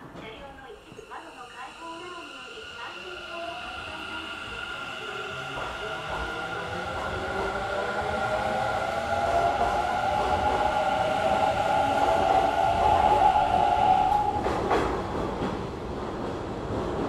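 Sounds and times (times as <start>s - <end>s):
train whine and rumble: 0.0s - 17.0s
train clatter: 5.4s - 7.8s, 9.1s - 17.0s.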